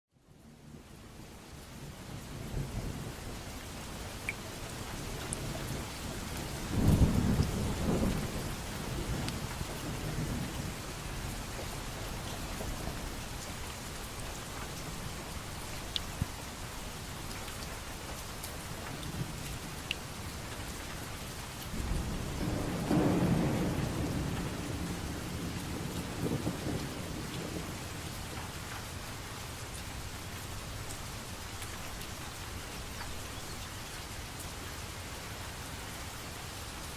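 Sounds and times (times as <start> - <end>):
steady rain falling: 0.1 - 36.9
low rolls of thunder: 5.1 - 13.1, 21.7 - 28.5.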